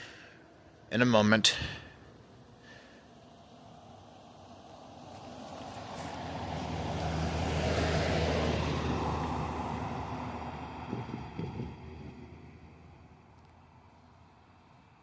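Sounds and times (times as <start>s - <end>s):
vehicle driving past: 3.2s - 15.0s.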